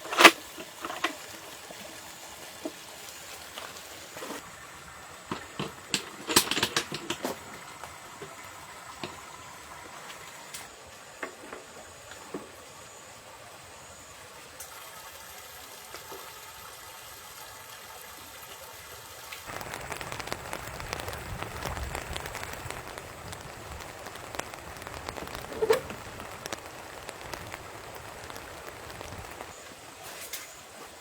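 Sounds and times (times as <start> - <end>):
rain pattering: 0.0 - 11.3, 19.3 - 30.4.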